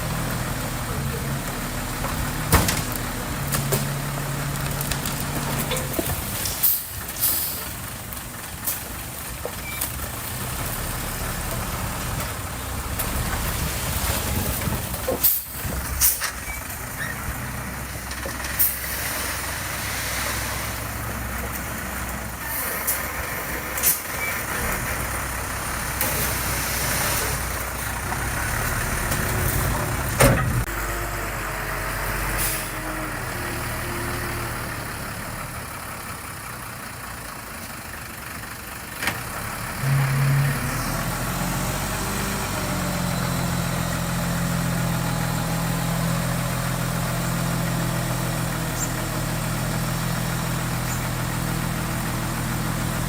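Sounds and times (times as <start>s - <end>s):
heavy diesel machinery running: 0.0s - 53.0s
sharp clanks and hisses: 5.7s - 7.8s, 15.1s - 17.2s, 22.4s - 24.7s.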